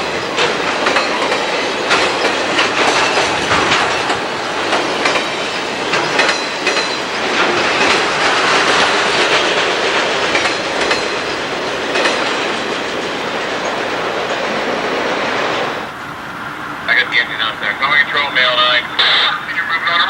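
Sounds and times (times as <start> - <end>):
wheels clicking over rail joints: 0.0 - 15.0
train rolling rumble: 0.0 - 20.0.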